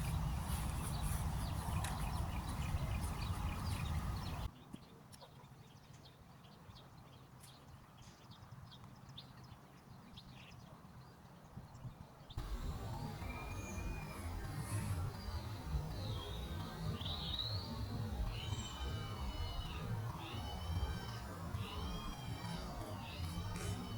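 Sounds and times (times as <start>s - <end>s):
wind rumble on microphone: 0.0s - 4.5s.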